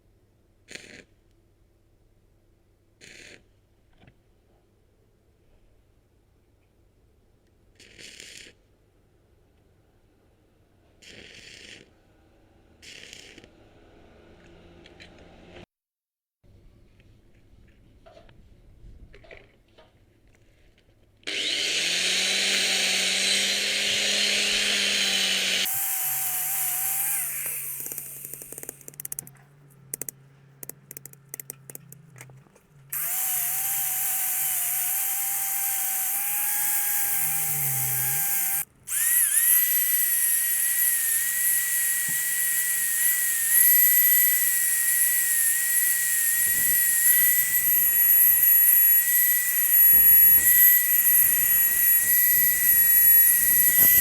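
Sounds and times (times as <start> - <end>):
power drill motor whine: 21.3 - 29.3, 32.9 - 54.0.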